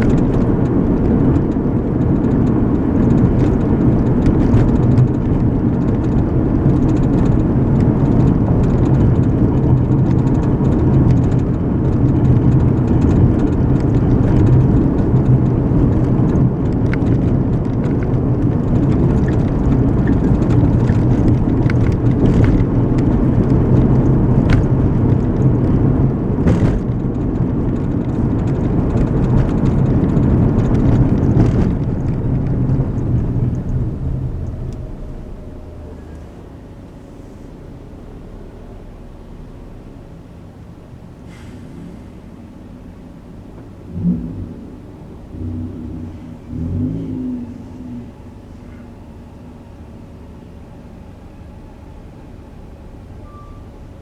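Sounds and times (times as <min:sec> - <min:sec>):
road and engine noise in car: 0:00.0 - 0:54.0.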